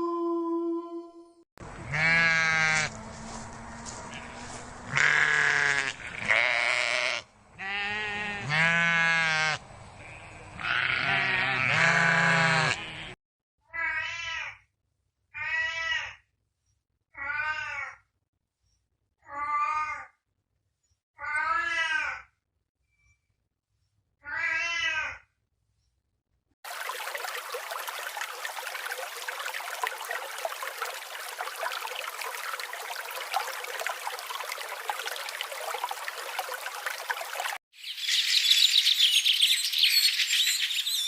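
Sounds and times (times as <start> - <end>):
livestock bleating: 1.8 - 2.9, 4.1 - 13.2.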